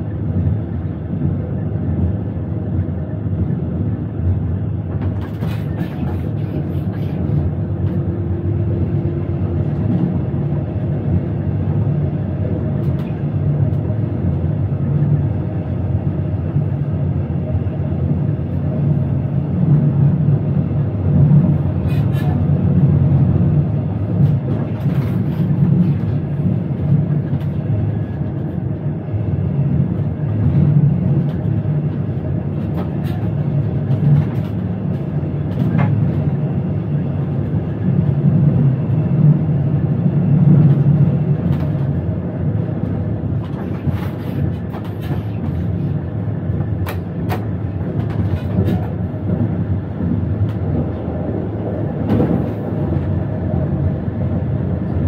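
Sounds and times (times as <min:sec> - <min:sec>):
wheels rumbling on rail: 0:00.0 - 0:55.0.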